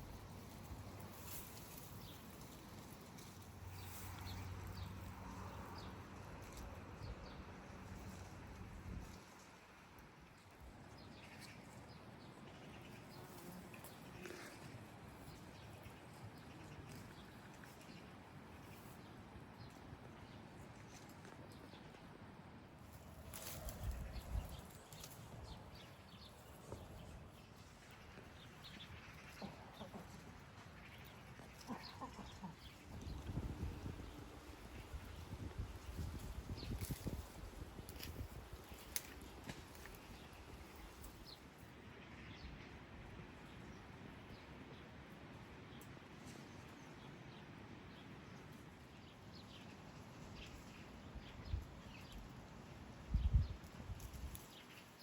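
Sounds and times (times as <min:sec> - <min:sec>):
small birds chirping: 0:00.0 - 0:08.3, 0:22.8 - 0:42.7
faint farm animal calls: 0:12.5 - 0:19.0, 0:26.0 - 0:33.9.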